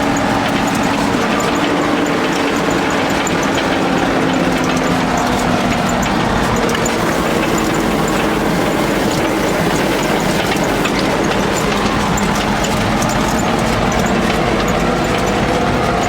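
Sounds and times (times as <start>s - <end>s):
rattles and clicks: 0.0s - 16.0s
truck engine running: 0.0s - 16.0s.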